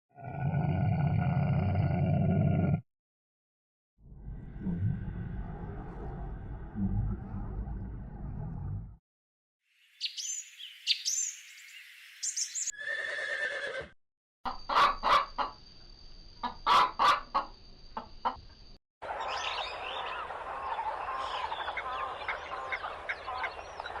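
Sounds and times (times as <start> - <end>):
chickens clucking: 14.5 - 15.6, 16.4 - 18.4, 19.1 - 24.0
chicks peeping: 19.7 - 24.0.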